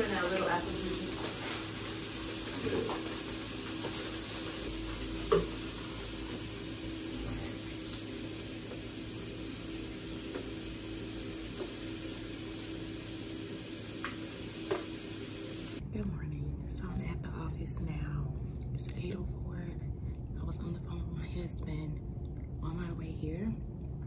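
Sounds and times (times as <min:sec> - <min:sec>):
steady hiss: 0:00.0 - 0:15.8
low hum: 0:00.0 - 0:24.0.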